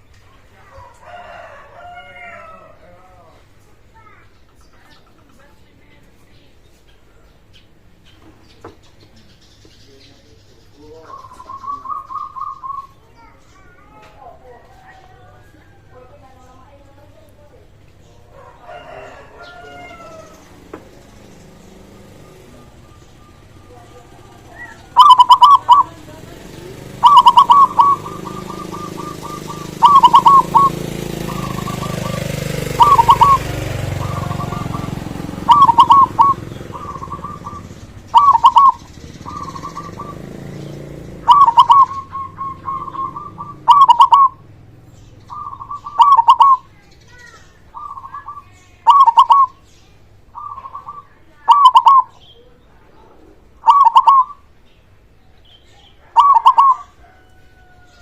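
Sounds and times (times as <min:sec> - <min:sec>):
dove cooing: 0:10.9 - 0:16.2, 0:17.0 - 0:49.6, 0:50.2 - 0:54.5, 0:55.8 - 0:58.0.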